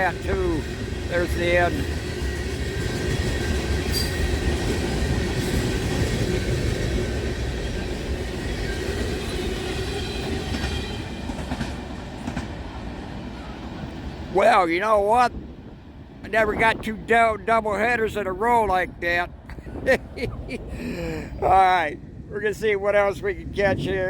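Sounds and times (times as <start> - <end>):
train wheels rumbling on track: 0.0 - 21.2
faint high wheel squeal: 3.9 - 4.3.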